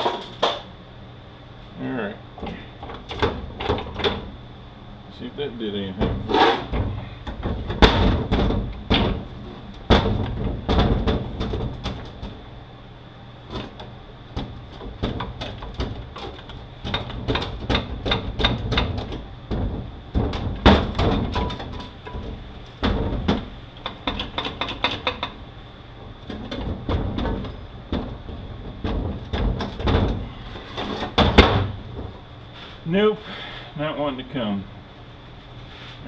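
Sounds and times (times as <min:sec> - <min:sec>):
hand tools clanking on metal: 0:06.0 - 0:06.8.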